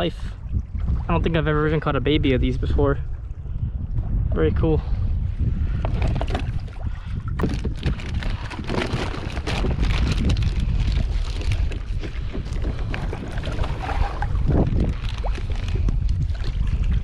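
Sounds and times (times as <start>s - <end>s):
wind buffeting microphone: 0.0s - 17.0s
water splashing against kayak: 5.6s - 17.0s.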